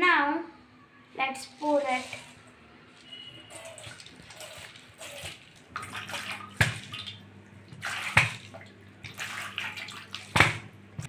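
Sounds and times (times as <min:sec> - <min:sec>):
water pouring and splashing: 0:01.4 - 0:10.7.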